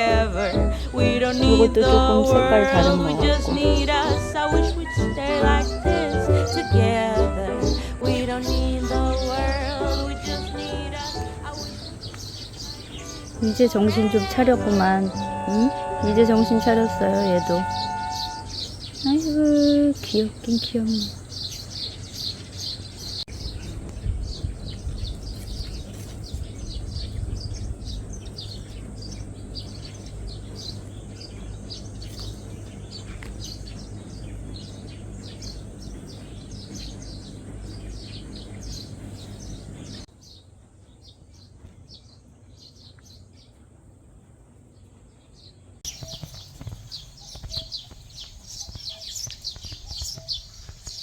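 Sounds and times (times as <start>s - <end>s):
steady low rumble: 0.0s - 41.0s
small birds chirping: 0.0s - 51.0s.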